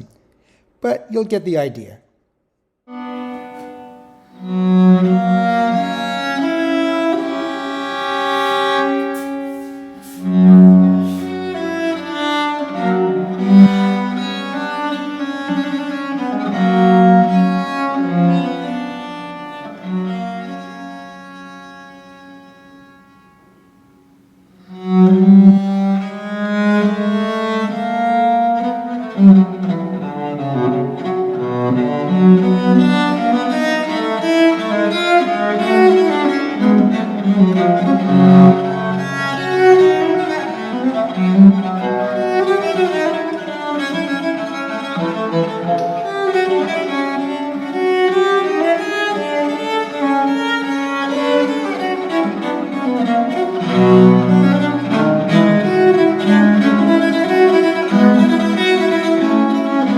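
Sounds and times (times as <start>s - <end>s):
cello playing classical music: 2.9s - 59.9s.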